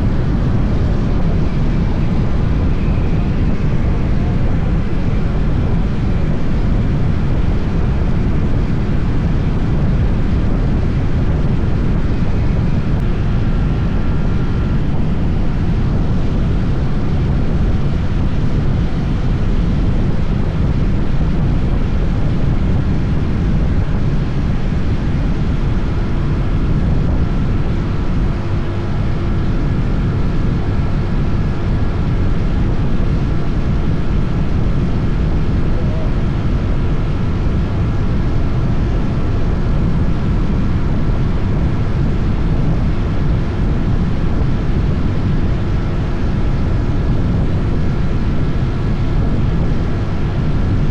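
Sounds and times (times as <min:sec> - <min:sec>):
motorcycle engine drone: 0:00.0 - 0:50.9
wind rushing over microphone: 0:00.0 - 0:50.9.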